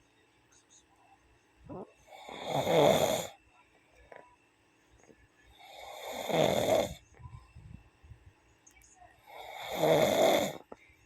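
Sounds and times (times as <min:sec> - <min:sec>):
person snoring: 0:01.7 - 0:03.4, 0:05.6 - 0:07.0, 0:09.3 - 0:10.6.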